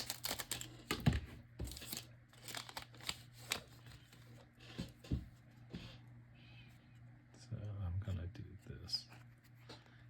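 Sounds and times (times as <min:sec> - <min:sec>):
packaging rustling and crinkling: 0:00.0 - 0:04.4.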